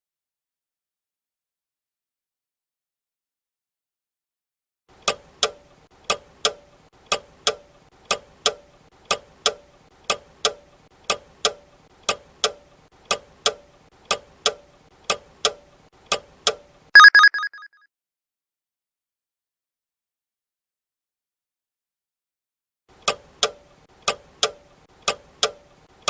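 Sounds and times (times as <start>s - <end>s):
ringing alarm: 17.0s - 17.6s.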